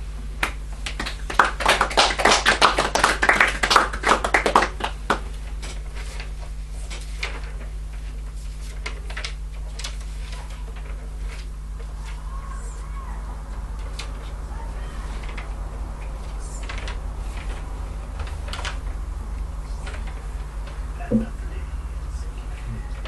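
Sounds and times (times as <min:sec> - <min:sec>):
low electrical hum: 0:00.0 - 0:23.0
small audience applauding: 0:00.4 - 0:05.4.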